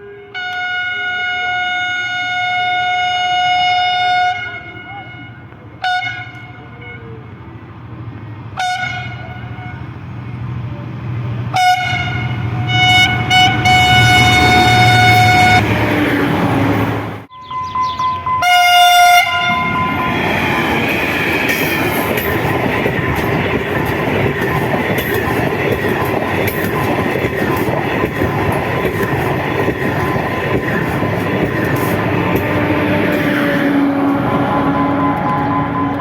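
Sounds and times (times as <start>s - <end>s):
locomotive horn blast: 0.0s - 7.4s, 8.5s - 9.9s, 11.5s - 25.2s, 26.4s - 36.0s
train passing with rumble: 0.0s - 36.0s
wheels clattering over rail joints: 19.5s - 36.0s.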